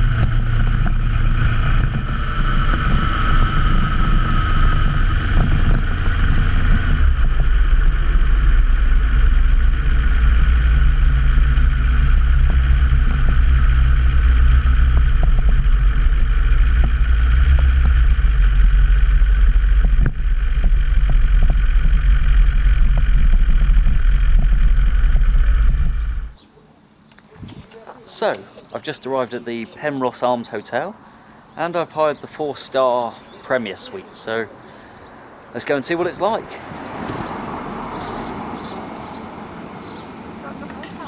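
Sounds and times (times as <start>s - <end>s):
motorcycle engine running: 0.0s - 26.4s.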